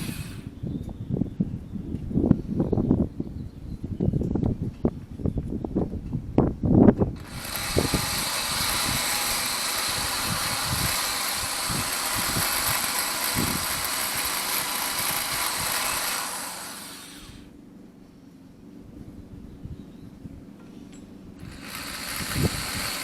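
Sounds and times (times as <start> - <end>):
rotary grinder whining: 0.0 - 0.5, 7.2 - 17.5, 21.4 - 23.0.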